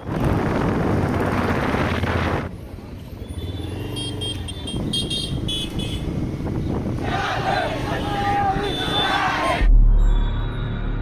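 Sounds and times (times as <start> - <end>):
wind rushing over microphone: 0.0 - 2.5, 4.8 - 8.6.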